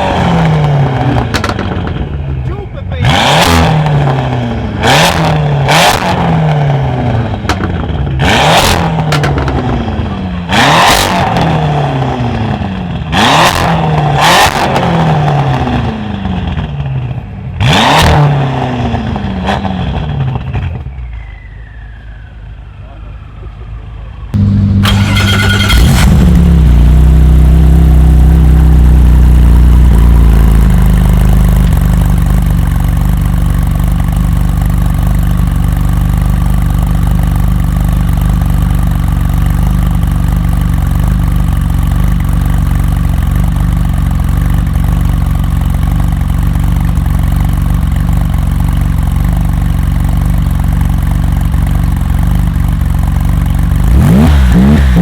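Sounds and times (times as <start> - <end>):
car engine idling: 21.7 - 55.0.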